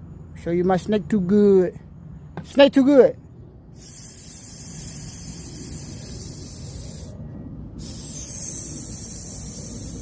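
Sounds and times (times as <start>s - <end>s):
snake hissing: 3.7s - 10.0s.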